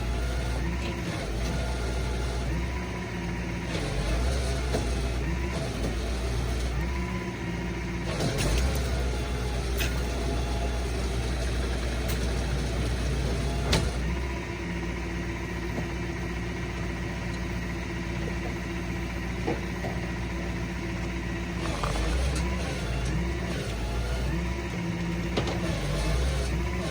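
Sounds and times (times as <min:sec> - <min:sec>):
truck engine humming: 0:00.0 - 0:26.9.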